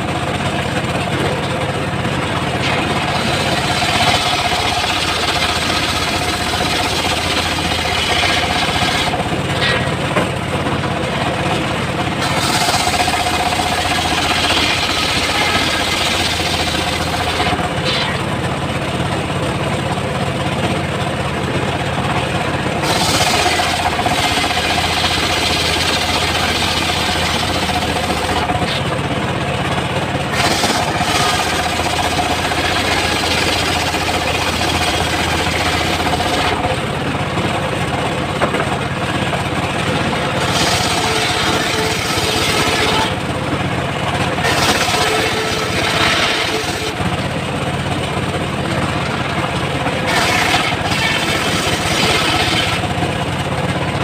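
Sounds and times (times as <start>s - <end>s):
sawmill low hum: 0.0s - 54.0s
saw blade cutting wood: 2.4s - 10.4s, 11.6s - 18.3s, 22.8s - 29.0s, 30.3s - 36.8s, 40.1s - 43.3s, 44.4s - 47.2s, 50.0s - 53.0s.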